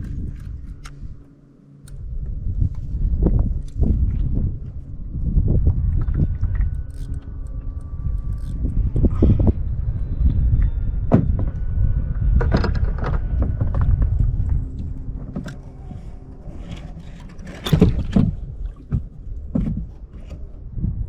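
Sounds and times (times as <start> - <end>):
wind rumble on microphone: 0.0 - 21.0
knocks and clunks on a kayak: 10.6 - 15.6, 16.7 - 21.0.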